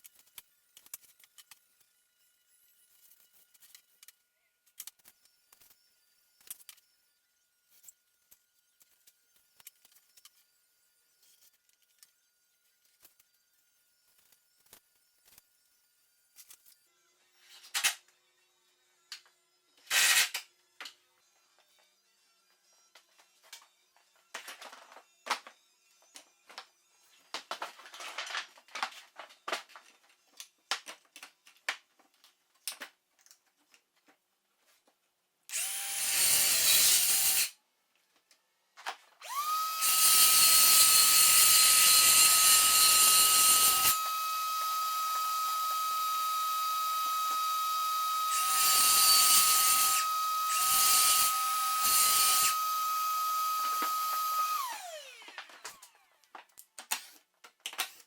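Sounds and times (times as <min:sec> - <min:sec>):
circular saw cutting: 0:35.5 - 0:37.6, 0:39.2 - 0:56.1.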